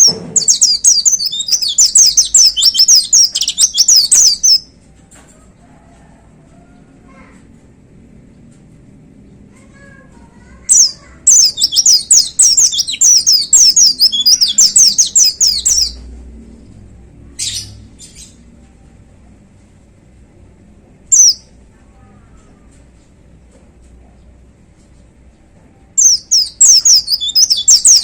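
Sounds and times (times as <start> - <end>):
bird chirps: 0.0 - 4.7, 10.7 - 16.1, 21.1 - 21.5, 26.0 - 28.0
bird singing rapid high song: 0.0 - 4.7, 10.6 - 16.1, 21.1 - 21.5, 26.0 - 28.0.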